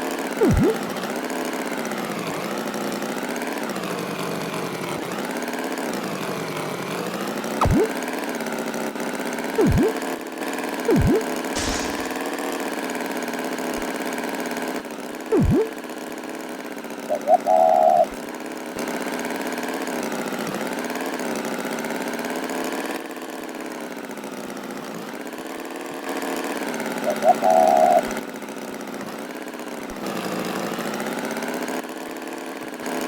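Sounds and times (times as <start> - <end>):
swooping sound effect: 0.4 - 0.9, 7.6 - 7.9, 9.6 - 10.0, 10.9 - 12.2, 15.3 - 15.8.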